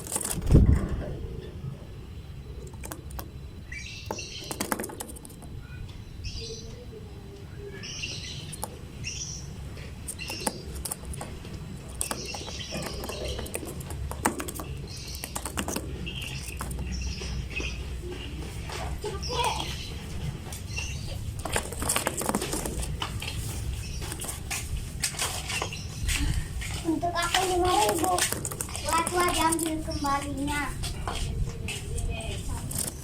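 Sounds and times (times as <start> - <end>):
lovebirds chirping: 1.2 - 33.0
sharp clicks and ticks: 2.6 - 3.3, 10.0 - 17.0, 26.6 - 31.2.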